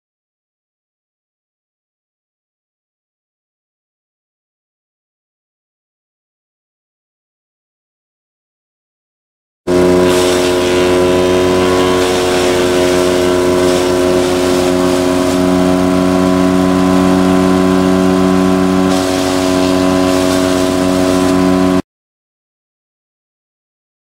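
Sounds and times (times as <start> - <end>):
wood chipper engine hum: 9.7 - 21.8.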